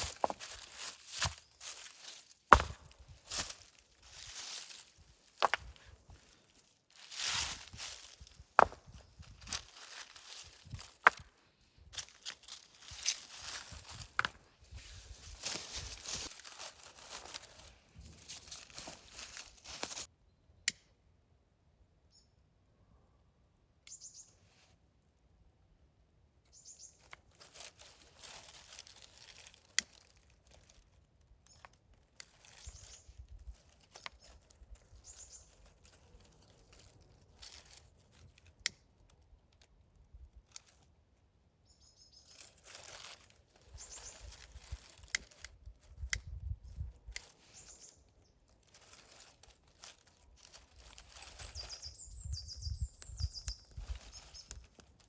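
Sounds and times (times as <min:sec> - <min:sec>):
hands crinkling and rustling: 0:00.0 - 0:20.1, 0:27.0 - 0:40.9, 0:42.2 - 0:55.0
high bird chirps: 0:23.9 - 0:24.4, 0:26.5 - 0:27.0, 0:41.6 - 0:42.4, 0:50.8 - 0:54.6.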